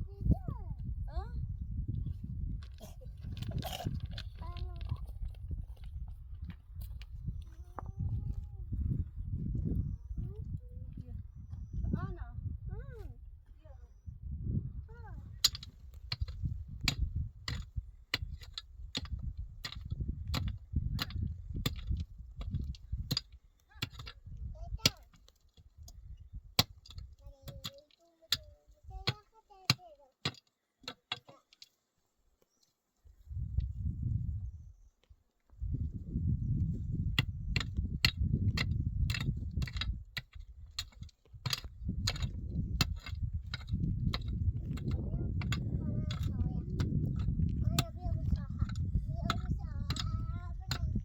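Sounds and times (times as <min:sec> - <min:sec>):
low uneven rumble: 0:41.7 - 0:51.0.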